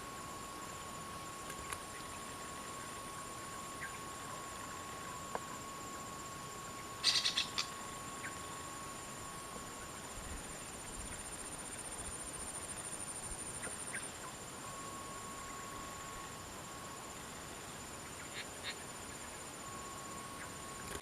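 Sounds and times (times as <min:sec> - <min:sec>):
insects droning: 0:00.0 - 0:21.0
bird notes: 0:07.0 - 0:08.4.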